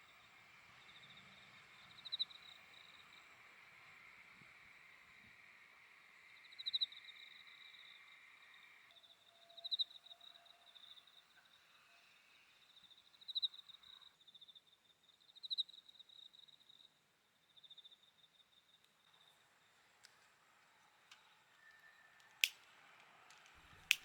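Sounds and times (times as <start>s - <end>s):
insects trilling: 0.1s - 16.8s.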